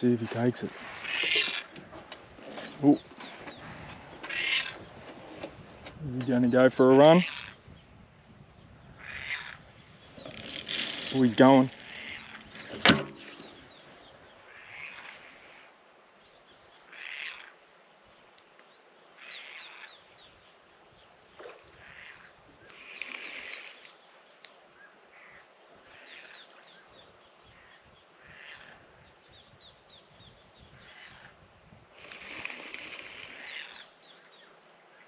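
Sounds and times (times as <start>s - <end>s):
short rough bird calls: 0.5s - 5.4s, 7.1s - 7.6s, 8.9s - 15.8s, 16.8s - 17.6s, 19.2s - 20.1s, 21.4s - 24.2s, 24.8s - 29.0s, 30.7s - 31.4s, 32.0s - 35.0s.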